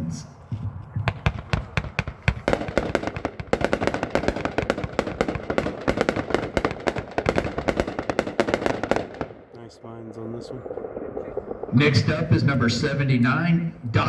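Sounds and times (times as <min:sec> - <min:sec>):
fireworks firing sharp bangs: 0:00.6 - 0:09.5.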